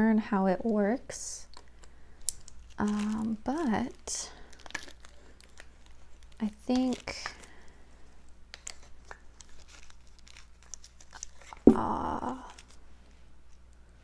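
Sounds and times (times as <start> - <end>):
packaging rustling: 4.5 - 7.4, 8.5 - 12.8.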